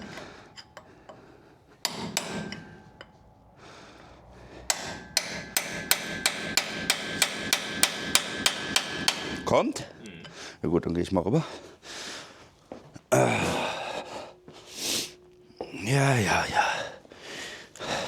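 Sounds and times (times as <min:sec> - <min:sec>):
hammer striking metal: 0:00.0 - 0:10.4.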